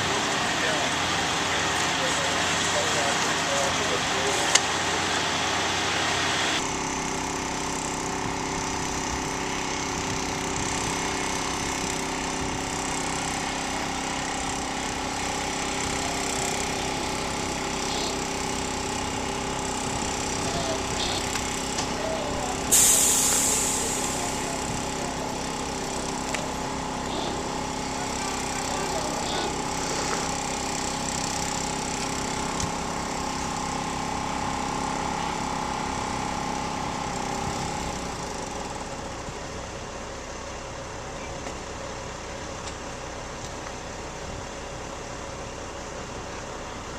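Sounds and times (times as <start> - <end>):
heavy engine idling: 0.0 - 46.9
loud hiss: 7.8 - 38.2.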